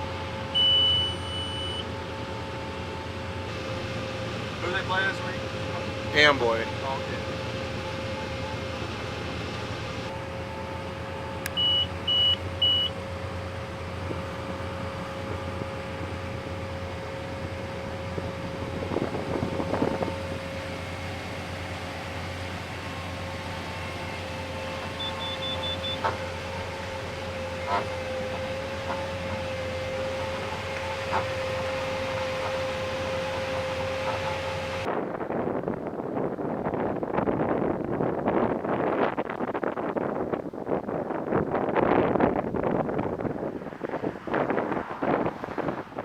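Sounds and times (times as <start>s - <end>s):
machine engine humming: 0.0s - 34.9s
constant whine: 0.0s - 46.0s
short electronic beeps: 0.6s - 1.8s, 11.5s - 13.0s, 25.0s - 26.1s
wind noise: 13.9s - 25.0s, 34.8s - 46.0s.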